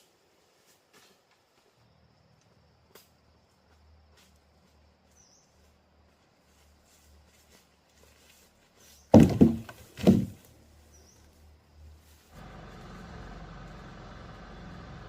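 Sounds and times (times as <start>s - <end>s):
heavy thuds: 9.1s - 10.5s
motor running steadily: 12.4s - 15.0s.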